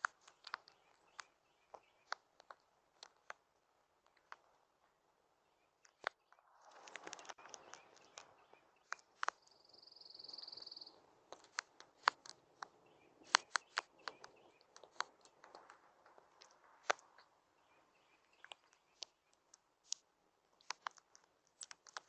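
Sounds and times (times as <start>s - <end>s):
rabbit crackling clicks: 0.0s - 3.4s, 5.8s - 22.0s.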